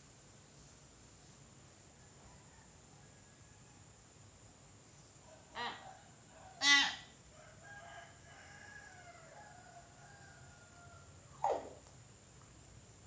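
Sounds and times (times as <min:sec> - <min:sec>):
myna calling: 0:06.6 - 0:07.1.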